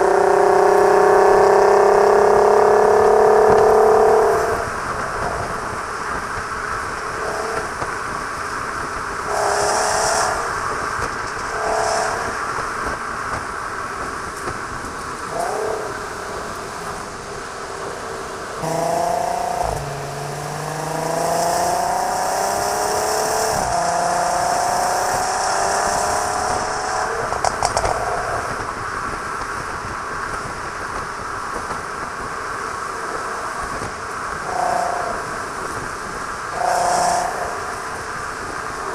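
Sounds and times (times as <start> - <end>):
car engine accelerating through gears: 0.0 - 6.1, 18.6 - 28.8, 36.5 - 38.2.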